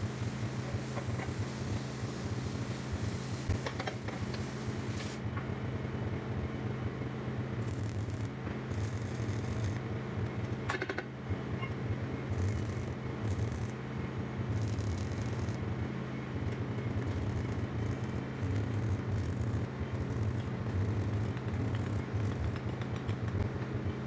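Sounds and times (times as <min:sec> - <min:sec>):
machinery humming: 0:11.6 - 0:22.8.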